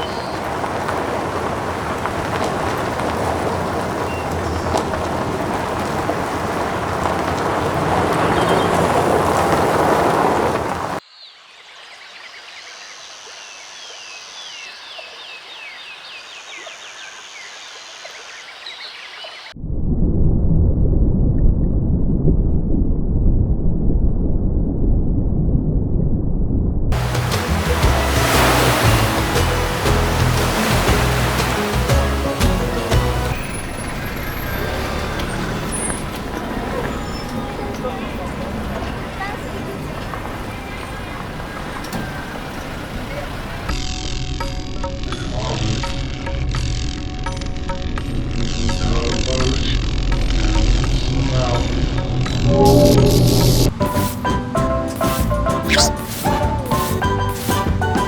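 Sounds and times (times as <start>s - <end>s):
deep rumble: 19.6s - 34.3s, 49.7s - 53.8s
steady rushing noise: 26.9s - 34.2s
surf hissing: 27.0s - 37.1s, 55.0s - 57.9s
low hum: 52.4s - 53.8s
faint short chirps: 55.7s - 56.1s.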